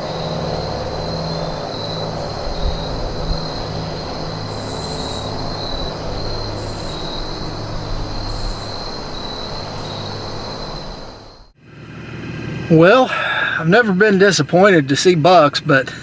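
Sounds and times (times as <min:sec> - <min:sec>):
higher buzzing calls: 0:00.0 - 0:11.5
insects trilling: 0:00.0 - 0:11.6.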